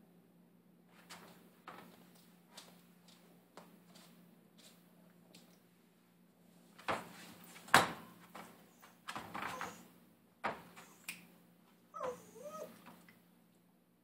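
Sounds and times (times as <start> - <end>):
puppy whining: 8.7 - 9.9, 10.8 - 11.1, 11.9 - 13.1.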